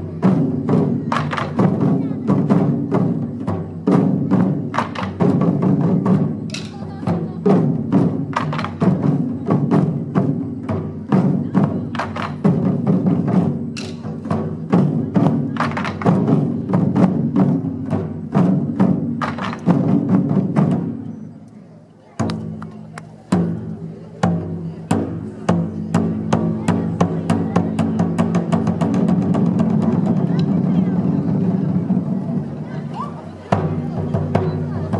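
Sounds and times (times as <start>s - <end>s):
taiko drums: 0.0s - 21.3s, 22.2s - 34.9s.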